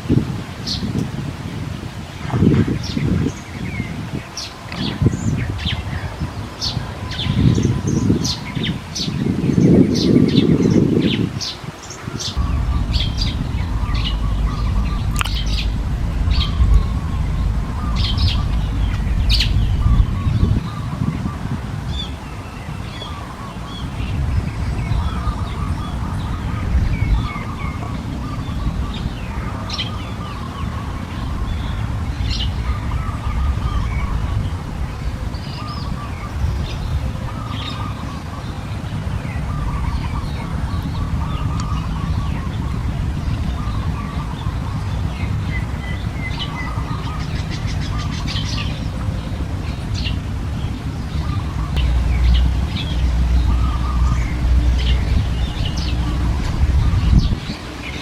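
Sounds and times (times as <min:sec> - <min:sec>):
small birds chirping: 0:00.1 - 0:58.0
steady low rumble: 0:12.3 - 0:58.0.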